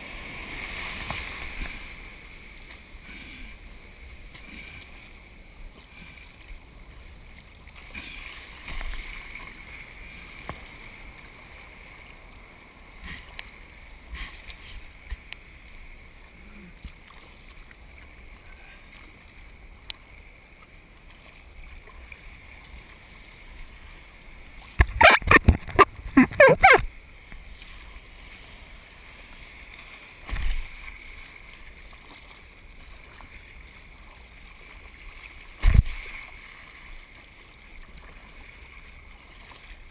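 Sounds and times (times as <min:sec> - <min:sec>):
wind: 0:00.0 - 0:39.9
water washing: 0:24.8 - 0:26.9.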